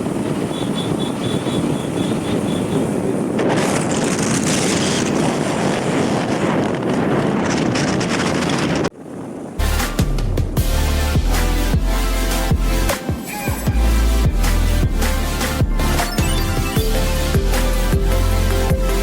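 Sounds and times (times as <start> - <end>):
wind buffeting microphone: 0.0 - 10.7
moving vehicle rumble: 0.0 - 12.0
music with heavy bass beat: 9.6 - 19.0.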